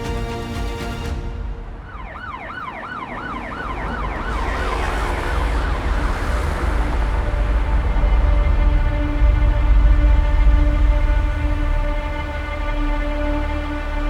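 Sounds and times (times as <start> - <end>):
siren yelping: 1.8 - 6.0
low rumble: 3.2 - 14.0.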